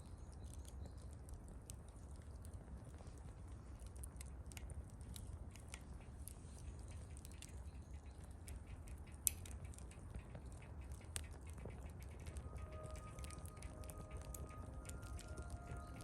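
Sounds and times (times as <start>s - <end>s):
campfire crackling: 0.0s - 16.0s
low steady rumble: 4.8s - 16.0s.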